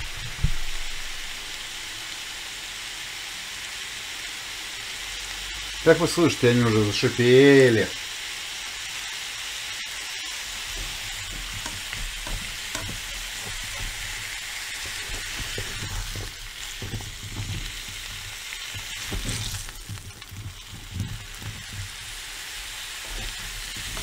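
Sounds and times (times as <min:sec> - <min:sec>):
vegetables sizzling in a pan: 0:00.0 - 0:24.0
spatula scraping a pan: 0:10.4 - 0:24.0.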